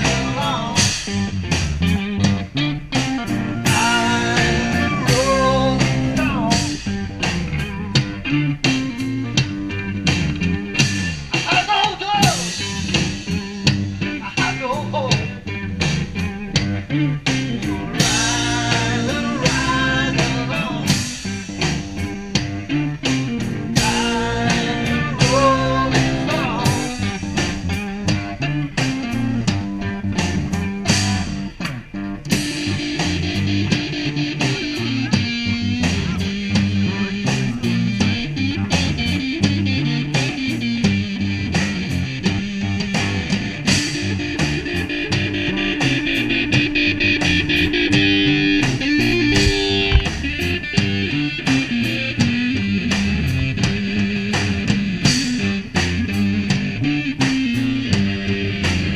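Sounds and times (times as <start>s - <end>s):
guitar band music: 0.0s - 58.9s
steady drum beat: 0.0s - 58.9s.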